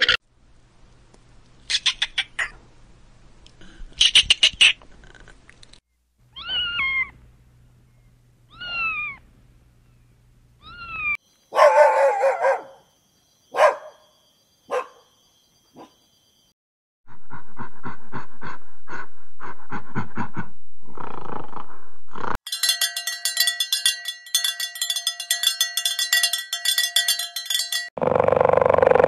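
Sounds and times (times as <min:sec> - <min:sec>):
squirrel chattering: 0:01.7 - 0:02.6, 0:04.0 - 0:05.2
cat meowing: 0:06.3 - 0:07.2, 0:08.5 - 0:09.2, 0:10.6 - 0:11.2
dog whining: 0:08.5 - 0:09.2.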